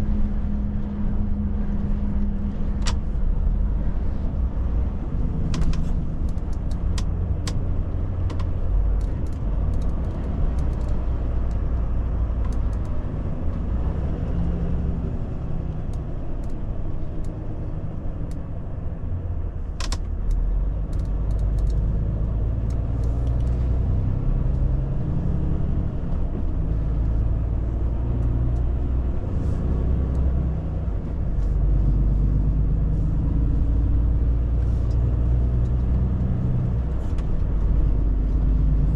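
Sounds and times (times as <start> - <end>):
road noise: 0.0 - 38.9
truck diesel engine rumbling: 0.0 - 38.9
sharp clicks: 5.5 - 7.6, 8.2 - 11.6.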